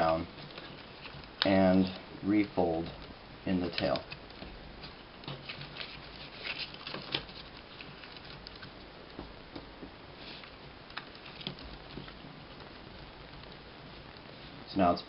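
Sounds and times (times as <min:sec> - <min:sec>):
paper rustling and crinkling: 0:00.3 - 0:02.0, 0:03.6 - 0:08.8.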